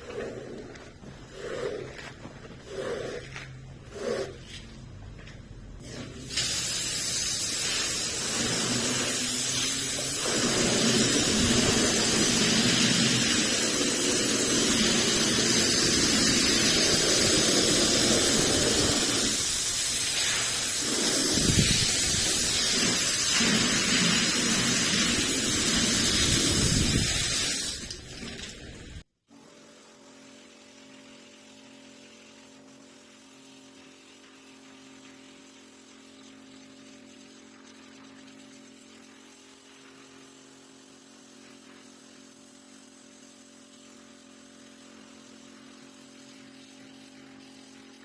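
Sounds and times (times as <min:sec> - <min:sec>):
water spraying onto a rug: 0:05.9 - 0:28.6.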